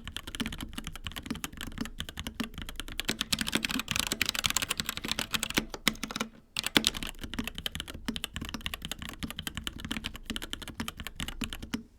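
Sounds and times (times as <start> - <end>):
fast typing on mechanical keyboard: 0.0 - 11.9.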